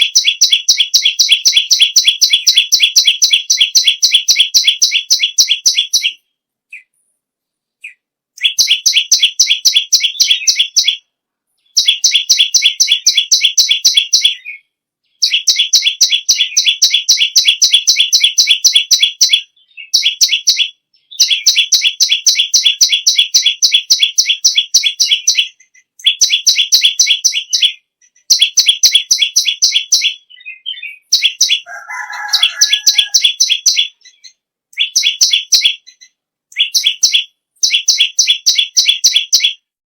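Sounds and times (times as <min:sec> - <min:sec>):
songbird trilling: 0:00.0 - 0:06.9, 0:07.8 - 0:11.0, 0:11.6 - 0:39.6
lower sliding bird call: 0:31.7 - 0:33.4.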